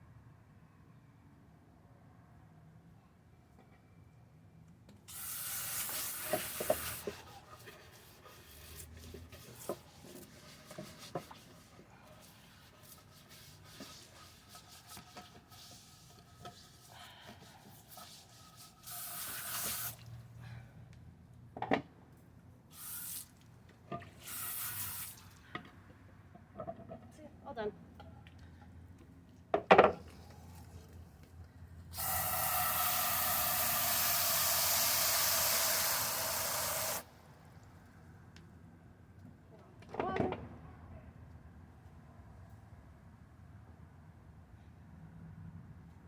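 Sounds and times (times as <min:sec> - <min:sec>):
tap running: 0:05.1 - 0:07.2, 0:32.0 - 0:37.0
scrubbing and scraping pan: 0:06.3 - 0:18.9.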